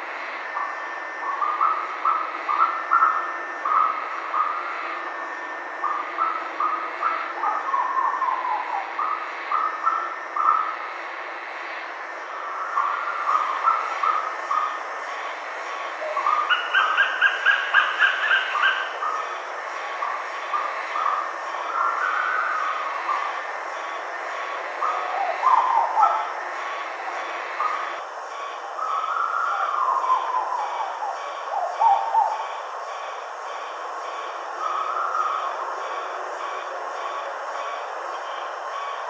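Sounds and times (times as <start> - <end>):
steady background hiss: 0.0 - 39.0
bird whistled calls: 5.8 - 10.7, 12.6 - 14.8, 16.0 - 19.3, 20.5 - 23.3, 24.8 - 26.3, 28.8 - 32.5, 34.6 - 35.5.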